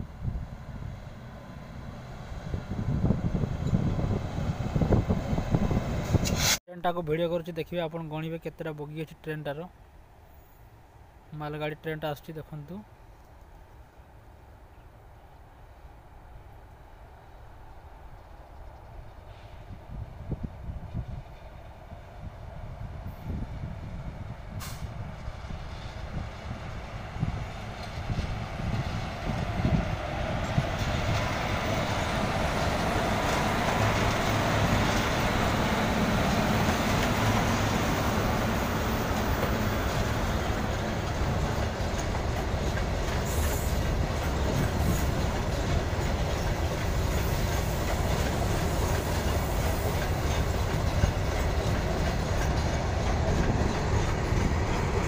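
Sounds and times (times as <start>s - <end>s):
locomotive approaching: 0.0s - 6.4s, 13.7s - 55.0s
wagons rumbling and clattering: 39.0s - 55.0s.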